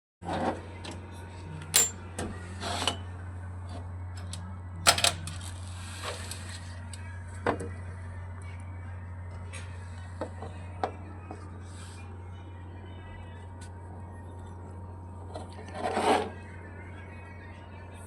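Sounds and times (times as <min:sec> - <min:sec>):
steady low hum: 0:00.2 - 0:18.0
metal tools clinking: 0:01.8 - 0:02.0.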